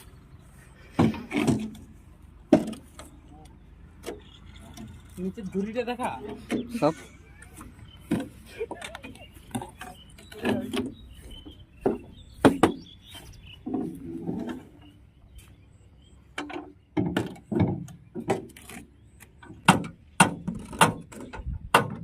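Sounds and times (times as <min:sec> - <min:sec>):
sharp knocks and clicks: 0:11.8 - 0:12.9, 0:16.3 - 0:22.0.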